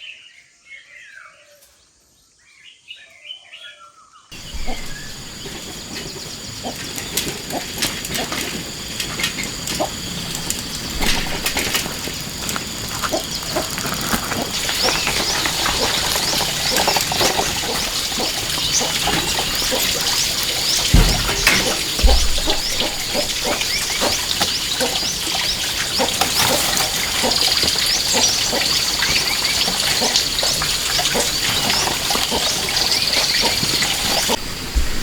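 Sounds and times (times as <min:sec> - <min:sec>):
small birds chirping: 0:02.3 - 0:34.6
low thumps: 0:04.4 - 0:25.7.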